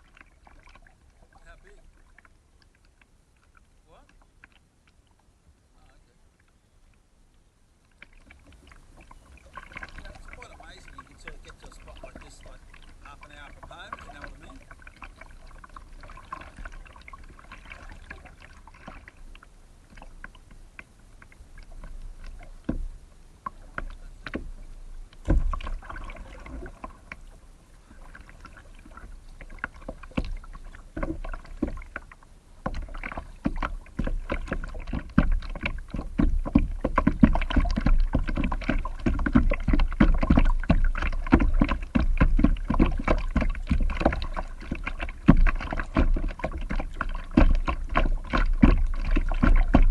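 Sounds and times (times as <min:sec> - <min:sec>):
paddle splashing in water: 0:00.0 - 0:05.3, 0:07.8 - 0:49.9.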